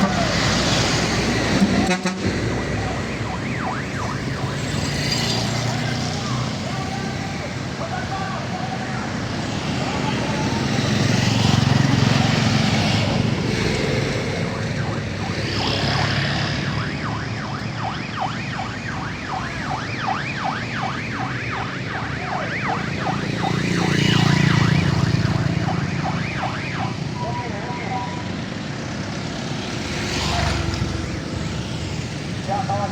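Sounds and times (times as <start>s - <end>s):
electronic siren yelping: 2.6s - 6.6s, 14.6s - 28.3s.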